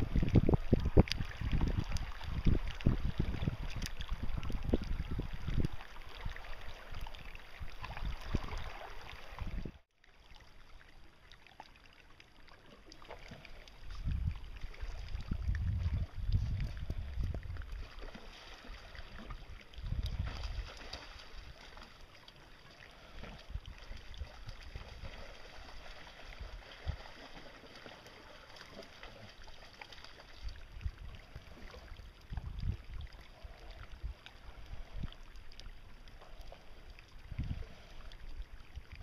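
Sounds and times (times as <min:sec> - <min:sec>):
wind buffeting microphone: 0:00.0 - 0:09.8, 0:13.8 - 0:17.9, 0:19.4 - 0:20.8, 0:30.6 - 0:34.2
water sloshing and gurgling: 0:00.0 - 0:39.0.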